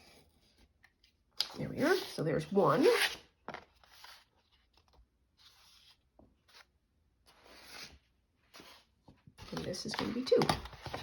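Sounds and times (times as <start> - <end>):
paper rustling: 3.5 - 11.0.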